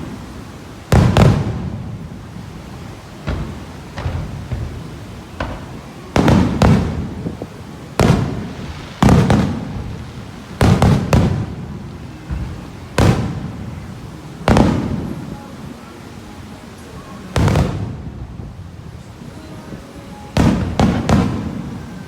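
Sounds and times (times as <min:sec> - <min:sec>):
fireworks bangs with rumbling echo: 0:00.0 - 0:15.6, 0:17.3 - 0:22.0
small fireworks pops: 0:00.9 - 0:15.3, 0:17.3 - 0:18.0, 0:20.3 - 0:22.0.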